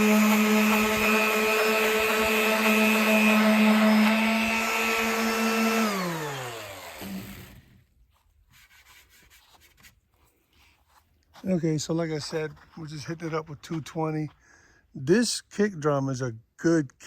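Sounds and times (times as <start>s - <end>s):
electric sander winding down: 0.0s - 7.8s.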